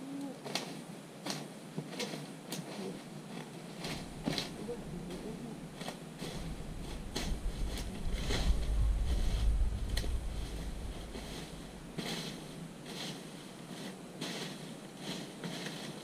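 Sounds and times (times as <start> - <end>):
light clicks and rustles: 0.2 - 16.0
wind rumbling on microphone: 3.8 - 13.5.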